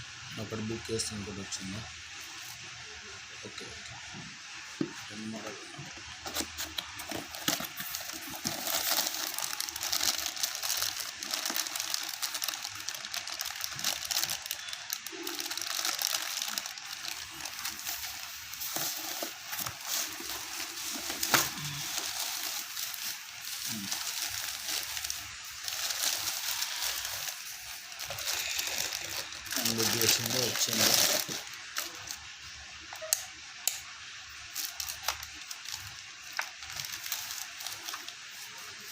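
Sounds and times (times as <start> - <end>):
packaging rustling: 4.8 - 32.3, 34.5 - 38.9.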